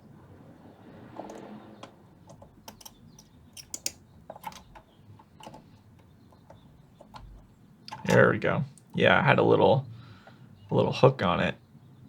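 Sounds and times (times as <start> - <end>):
hand tools clicking and tapping: 1.2 - 9.0.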